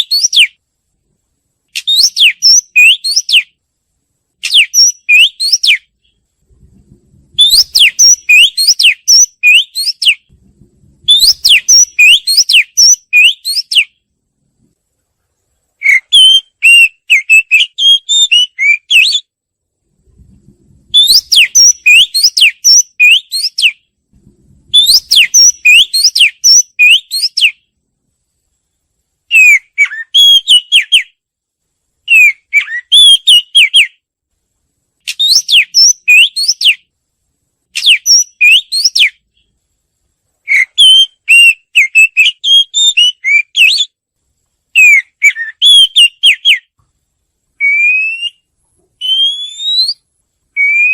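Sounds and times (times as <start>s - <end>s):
bird singing whistled notes: 0.0s - 0.6s, 1.8s - 3.6s, 4.4s - 6.2s, 7.3s - 10.3s, 11.0s - 14.0s, 15.8s - 19.4s, 20.9s - 23.9s, 24.7s - 27.7s, 29.3s - 31.2s, 32.1s - 34.0s, 35.1s - 36.9s, 37.8s - 39.2s, 40.5s - 44.0s, 44.8s - 46.7s, 47.6s - 50.9s.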